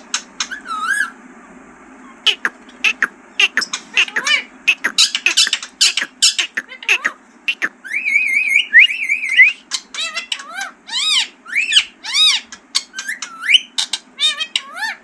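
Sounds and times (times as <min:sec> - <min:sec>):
parakeet whistling and calling: 0:02.3 - 0:09.6.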